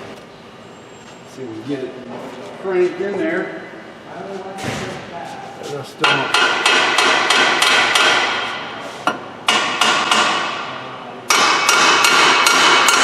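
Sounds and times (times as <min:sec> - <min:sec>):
hammer striking steel: 0:06.0 - 0:13.0.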